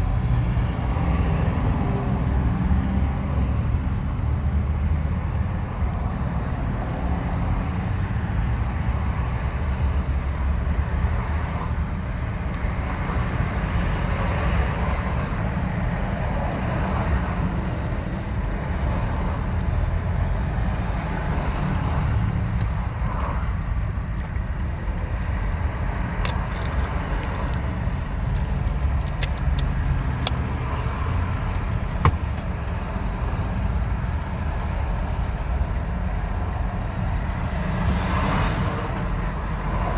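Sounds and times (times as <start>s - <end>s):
road vehicle rumble: 0.0s - 39.9s
sharp clicks: 22.6s - 33.0s.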